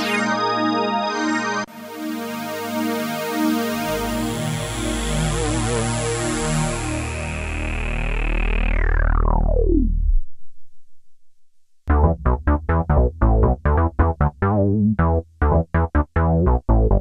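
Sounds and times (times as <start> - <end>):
synthesizer held chord: 0.0 - 9.7, 11.9 - 14.4
plucked synth notes with bass: 3.9 - 10.2, 11.9 - 17.0.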